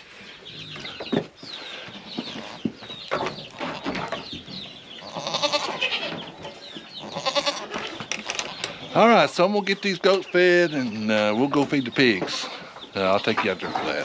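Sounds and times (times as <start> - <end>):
chickens clucking and peeping: 0.0 - 14.0
goats bleating: 5.0 - 6.2, 7.0 - 8.7, 12.2 - 12.8.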